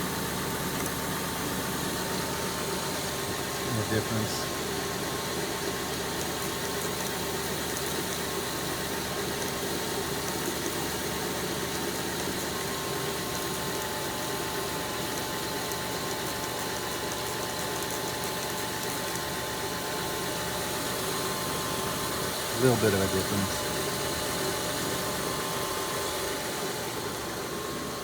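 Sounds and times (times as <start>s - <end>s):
car engine idling: 0.0s - 28.0s
faint growl from engine belt: 2.4s - 5.0s.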